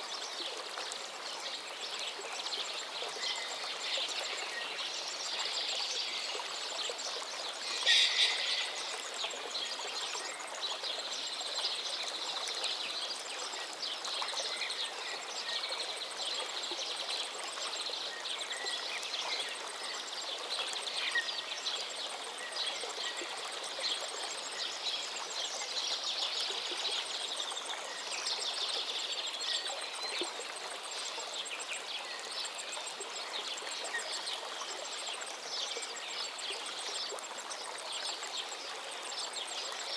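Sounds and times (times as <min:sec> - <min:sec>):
background hiss: 0:00.0 - 0:39.9
birds chirping and calling: 0:07.6 - 0:09.2.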